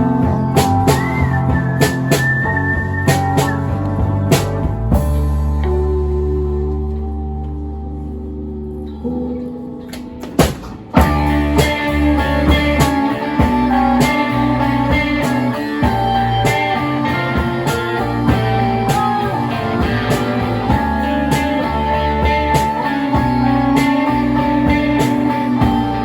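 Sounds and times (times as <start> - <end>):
electric guitar notes: 0.0 - 26.0
live band playing: 0.0 - 26.0
drum hits: 10.2 - 24.1.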